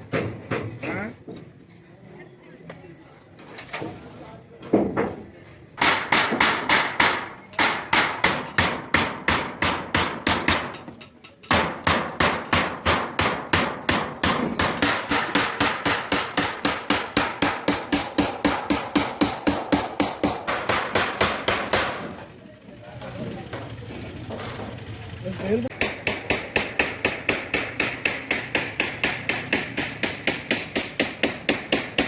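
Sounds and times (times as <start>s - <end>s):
hand hammer striking metal: 5.8s - 22.1s, 25.7s - 32.0s.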